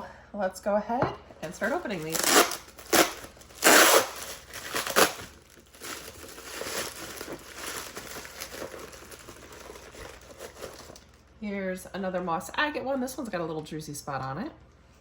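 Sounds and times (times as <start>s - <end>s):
packaging crinkling: 1.4s - 11.4s.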